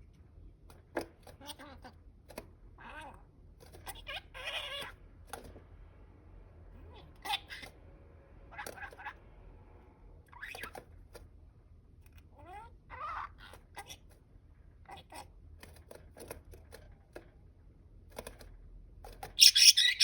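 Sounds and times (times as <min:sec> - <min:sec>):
quiet clicks and scratches: 0:15.5 - 0:19.4
budgerigars chirping and warbling: 0:19.4 - 0:20.0.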